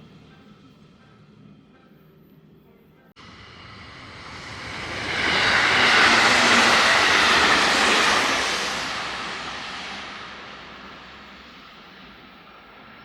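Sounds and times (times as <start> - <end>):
train passing at speed: 3.2 - 13.0.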